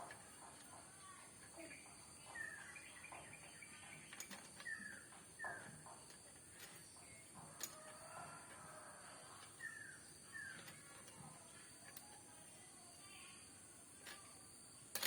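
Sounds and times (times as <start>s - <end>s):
faint bird chirps: 1.0s - 8.2s, 8.8s - 13.6s.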